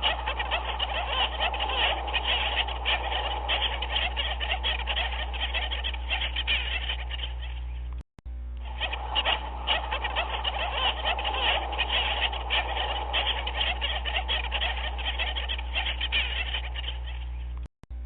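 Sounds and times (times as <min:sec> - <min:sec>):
penguins calling: 0:00.0 - 0:07.9, 0:08.6 - 0:17.6
steady low hum: 0:00.0 - 0:18.0.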